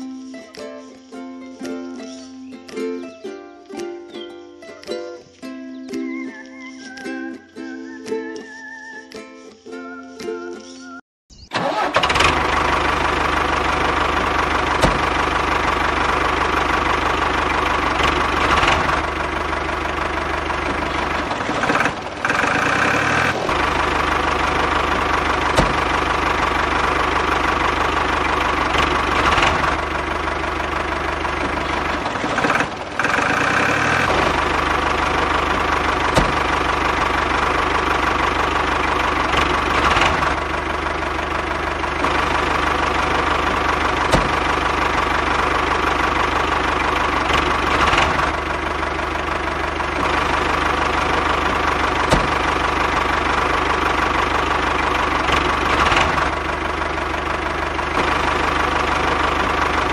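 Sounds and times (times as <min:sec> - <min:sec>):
sharp clicks: 0:00.0 - 0:10.8.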